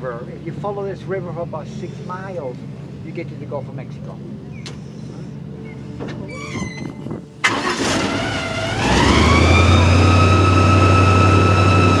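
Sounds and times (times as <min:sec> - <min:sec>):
boat engine droning: 0:07.4 - 0:12.0.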